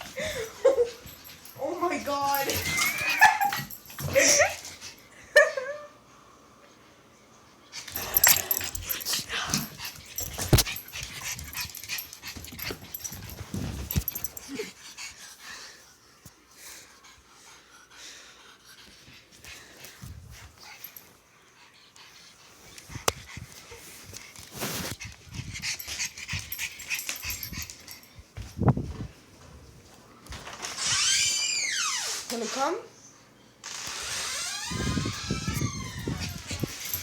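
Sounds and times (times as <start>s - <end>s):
dog breathing: 7.8s - 28.3s, 35.0s - 37.0s.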